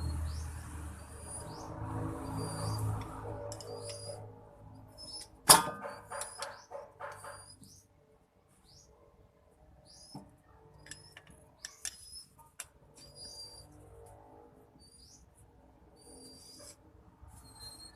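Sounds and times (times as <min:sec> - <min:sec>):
birds chirping: 0:00.0 - 0:07.9, 0:08.6 - 0:09.0, 0:09.8 - 0:13.8
sharp metallic clank: 0:05.4 - 0:07.4.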